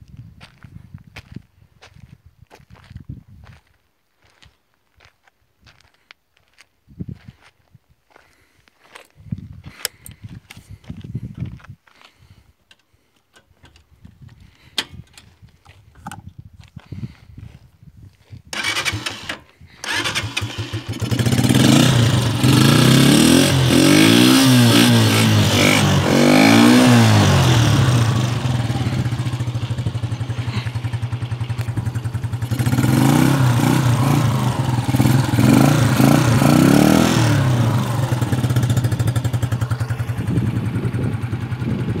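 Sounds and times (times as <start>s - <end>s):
motorcycle engine revving and idling: 18.6s - 42.0s.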